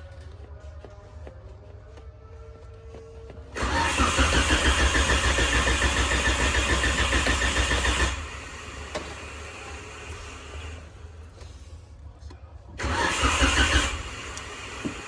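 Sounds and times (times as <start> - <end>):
car engine cranking: 3.6 - 10.9, 12.8 - 15.0.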